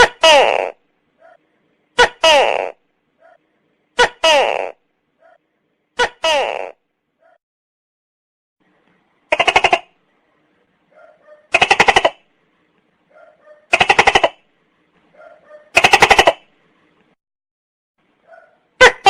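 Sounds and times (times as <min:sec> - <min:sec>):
gecko rattling calls: 0:09.3 - 0:09.9, 0:11.5 - 0:12.2, 0:13.7 - 0:14.4, 0:15.7 - 0:16.5.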